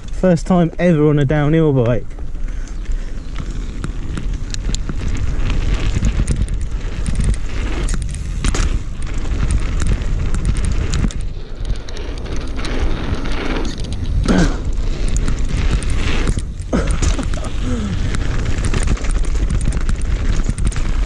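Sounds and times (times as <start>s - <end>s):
wind rumble on microphone: 0.0s - 21.0s
bike knocks and rattles: 1.8s - 21.0s
tyres rolling over dirt and stones: 2.1s - 21.0s.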